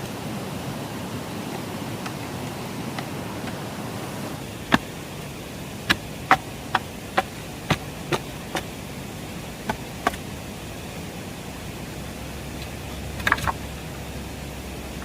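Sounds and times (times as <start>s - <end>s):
steady hiss: 0.0s - 15.0s
sharp chopping knocks: 4.6s - 5.0s, 5.9s - 8.8s, 9.7s - 10.2s.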